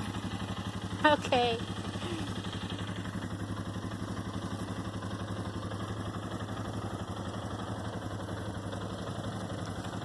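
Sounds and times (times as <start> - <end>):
atv engine idling: 0.0 - 10.0.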